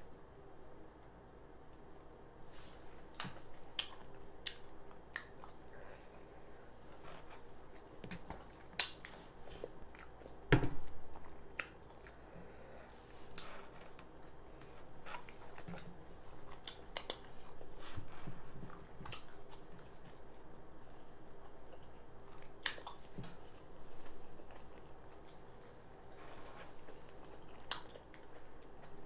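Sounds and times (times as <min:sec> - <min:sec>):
wet chewing and lip smacks: 0:03.2 - 0:05.6, 0:07.7 - 0:09.2, 0:11.5 - 0:12.2, 0:13.3 - 0:17.4, 0:20.9 - 0:23.5, 0:26.7 - 0:29.0.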